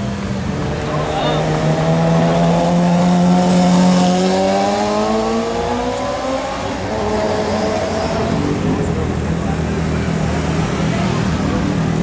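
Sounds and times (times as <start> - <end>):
street traffic noise: 0.0 - 12.0
motorcycle engine accelerating: 0.6 - 9.0.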